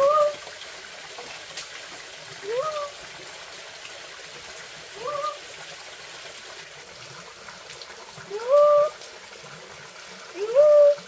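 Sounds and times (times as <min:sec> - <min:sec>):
trickle of running water: 0:00.0 - 0:11.0
rising call: 0:05.0 - 0:05.4.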